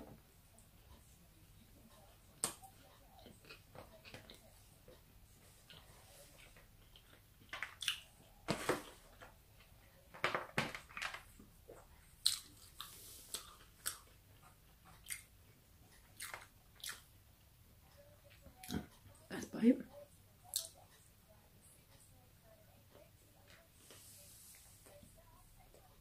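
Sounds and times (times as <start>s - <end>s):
close-up chewing: 0.5s - 9.9s, 11.7s - 19.2s, 20.4s - 21.1s.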